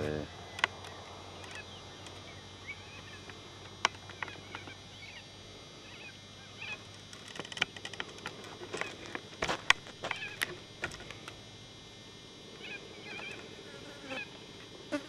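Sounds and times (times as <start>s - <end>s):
birds chirping: 0.0s - 9.2s, 10.0s - 11.2s, 12.6s - 14.4s
steady background hiss: 0.0s - 15.0s
sharp clicks: 0.5s - 2.3s.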